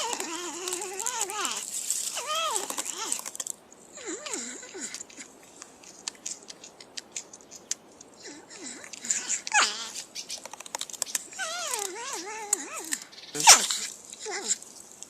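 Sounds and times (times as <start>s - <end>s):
porcupine whining squeaks: 0.0s - 3.3s, 4.0s - 5.3s, 6.3s - 14.7s
porcupine clicks: 4.2s - 15.0s.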